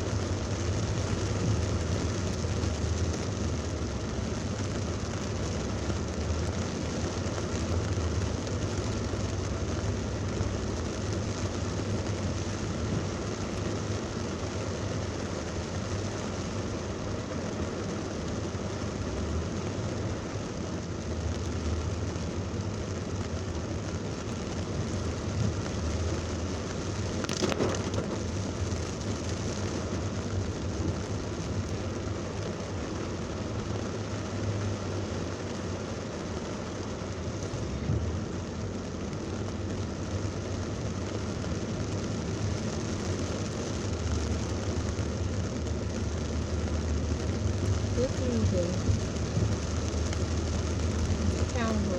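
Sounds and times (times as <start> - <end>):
heavy rain falling: 0.0 - 51.9
vehicle and traffic rumble: 0.0 - 51.9.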